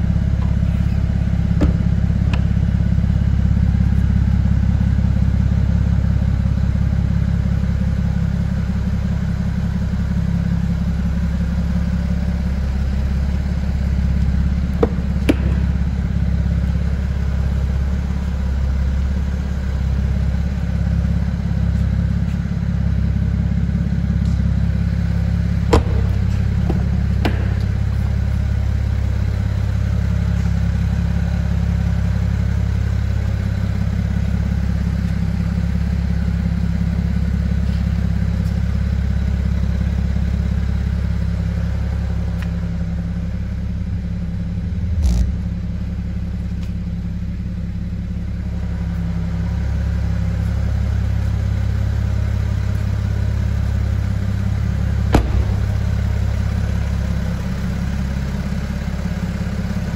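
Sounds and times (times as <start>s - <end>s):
car engine idling: 0.0s - 59.9s
sharp knocks: 1.6s - 2.5s, 14.8s - 15.8s, 25.7s - 27.9s, 55.1s - 56.2s.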